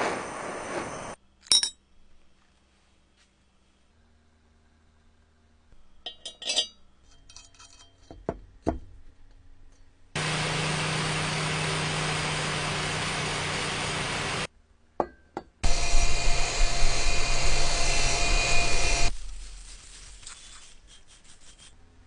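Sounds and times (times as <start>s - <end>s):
metallic clinks and rattles: 6.1s - 8.3s
coffee grinder motor humming: 10.2s - 14.5s, 15.6s - 19.1s.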